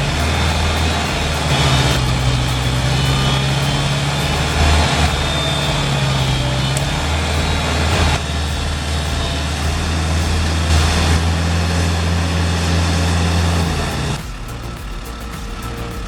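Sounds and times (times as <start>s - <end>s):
heavy machinery engine running: 0.0s - 16.0s
mechanical noise: 0.0s - 16.0s.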